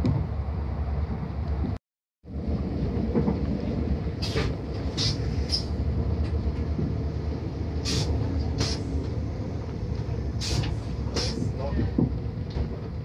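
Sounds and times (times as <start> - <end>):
train rumble inside carriage: 0.0 - 13.0
short hissing noises: 4.2 - 5.7, 7.8 - 9.0, 10.4 - 11.5.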